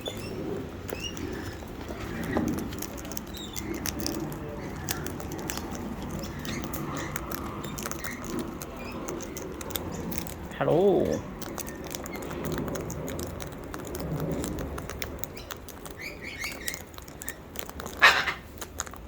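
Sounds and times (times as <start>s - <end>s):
soft high bird chirps: 0.0s - 2.4s, 15.2s - 18.4s
birds' beaks crunching seed: 0.0s - 19.0s.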